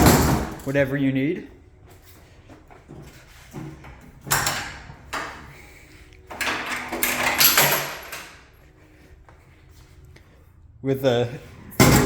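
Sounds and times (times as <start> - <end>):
clanks and rattling: 6.3 - 8.4.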